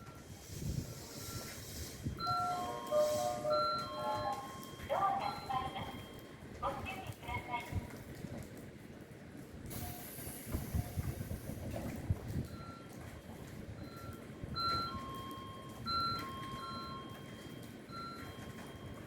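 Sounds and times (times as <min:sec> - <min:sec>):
two-tone electronic warning beeps: 0:00.0 - 0:07.1, 0:13.8 - 0:19.0.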